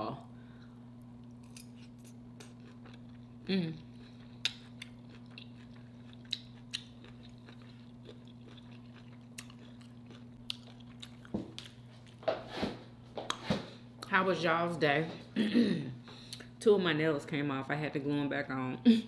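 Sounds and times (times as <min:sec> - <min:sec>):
steady low hum: 0:00.0 - 0:19.0
mouth chewing food: 0:01.2 - 0:12.2.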